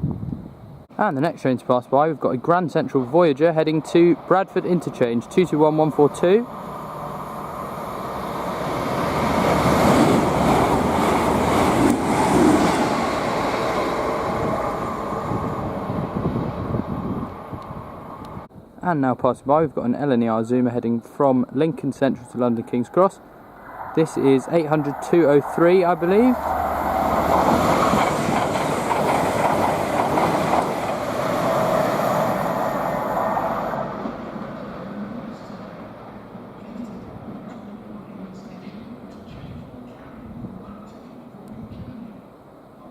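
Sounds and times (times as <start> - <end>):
train passing at speed: 2.9 - 18.5, 22.6 - 42.9.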